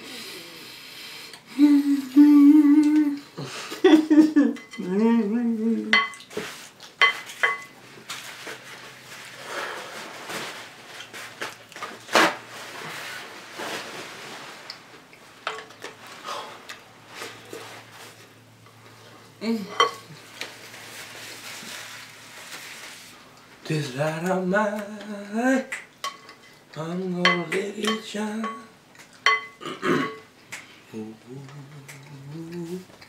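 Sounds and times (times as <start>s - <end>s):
person humming a tune: 0.0s - 6.0s, 19.4s - 20.2s, 30.8s - 33.0s
spoons clinking in cereal bowls: 7.0s - 7.8s, 27.2s - 28.7s, 29.3s - 30.2s.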